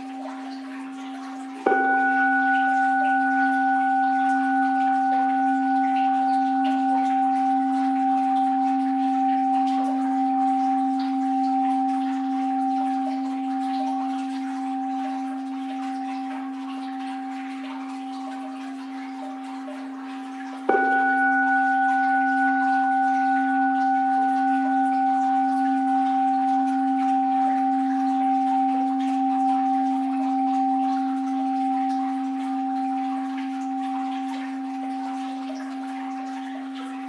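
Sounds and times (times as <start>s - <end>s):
bowl bell ringing: 0.0s - 37.0s
faint water wash: 0.0s - 37.0s.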